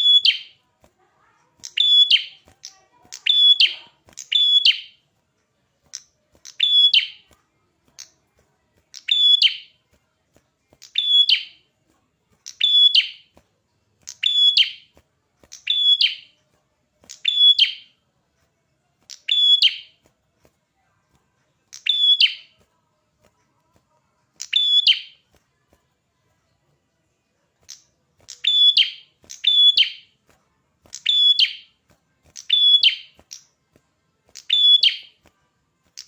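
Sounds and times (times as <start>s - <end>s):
songbird high sharp chirps: 0.0s - 0.6s, 1.6s - 5.0s, 5.9s - 7.4s, 8.9s - 9.8s, 10.8s - 11.6s, 12.4s - 13.4s, 14.0s - 16.4s, 17.1s - 18.0s, 19.1s - 20.0s, 21.7s - 22.6s, 24.4s - 25.3s, 27.6s - 30.2s, 30.8s - 33.6s, 34.4s - 35.3s.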